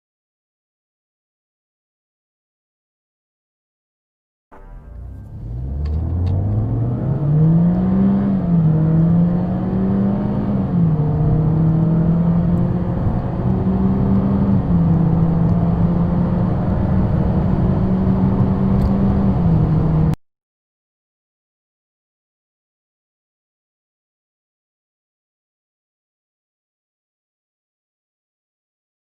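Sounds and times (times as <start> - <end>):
car engine accelerating: 4.6 - 20.2.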